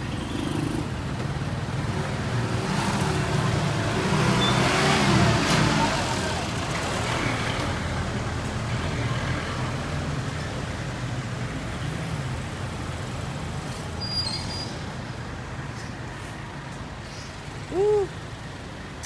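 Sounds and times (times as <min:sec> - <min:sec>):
brief high squeal: 0:14.0 - 0:14.8
vehicle engine humming: 0:17.4 - 0:19.0.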